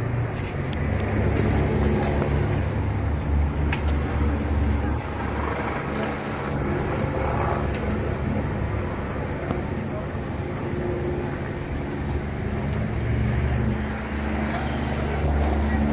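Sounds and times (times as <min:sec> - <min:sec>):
street traffic: 0:00.0 - 0:15.9
vehicle engine rumble: 0:00.0 - 0:15.9.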